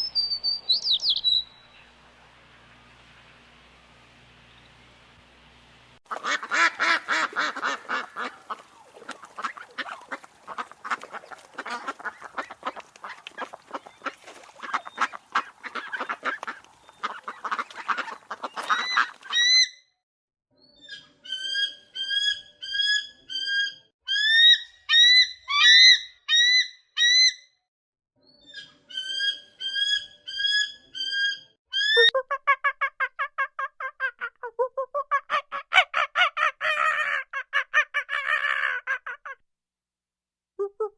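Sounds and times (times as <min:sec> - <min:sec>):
lower bird calls: 0:00.0 - 0:05.2
geese honking: 0:01.7 - 0:19.3.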